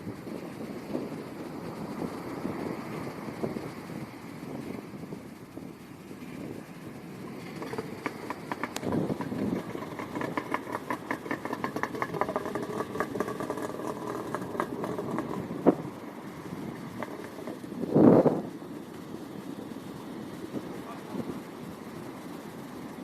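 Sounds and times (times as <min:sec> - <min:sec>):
small boat motor running: 0:00.0 - 0:23.0
rapid rattling ticks: 0:07.2 - 0:23.0.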